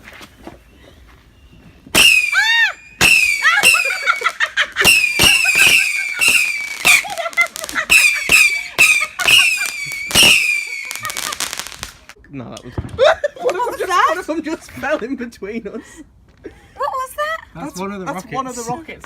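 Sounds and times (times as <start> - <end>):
firework cracks: 1.9 - 12.2
whistling fireworks: 1.9 - 12.2.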